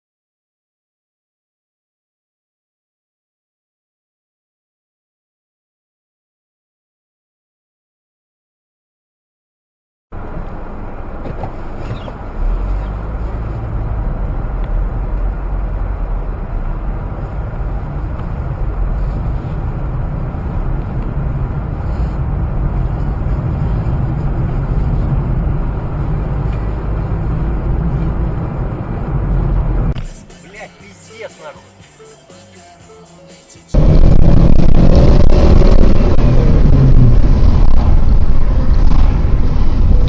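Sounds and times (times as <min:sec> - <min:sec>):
vehicle engine and road rumble: 0:10.1 - 0:32.0, 0:33.7 - 0:40.0.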